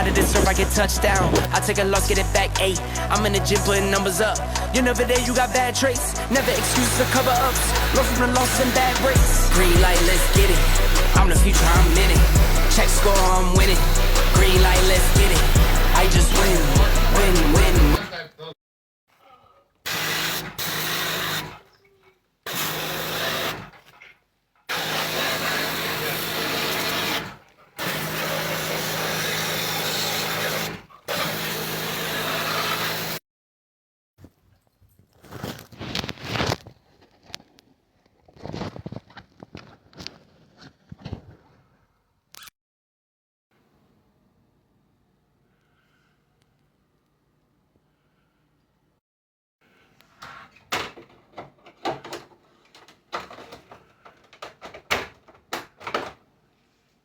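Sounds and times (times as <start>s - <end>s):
irregular scraping and rubbing: 0.0s - 2.6s, 6.3s - 18.0s, 35.1s - 41.8s
machine motor hissing and humming: 6.3s - 18.0s, 24.7s - 33.2s.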